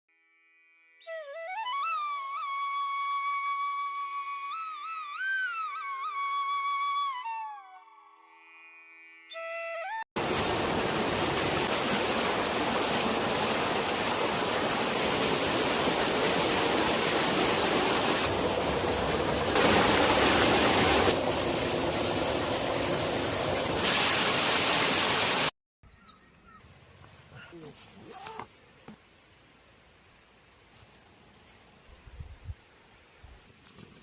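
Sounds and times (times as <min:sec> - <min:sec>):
rushing water: 0:10.2 - 0:25.5.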